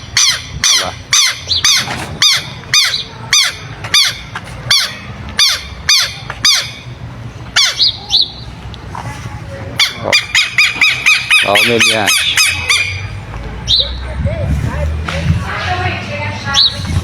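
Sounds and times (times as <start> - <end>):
lapwings harsh alarm calls: 0.0 - 6.9, 7.6 - 8.4, 9.8 - 13.1.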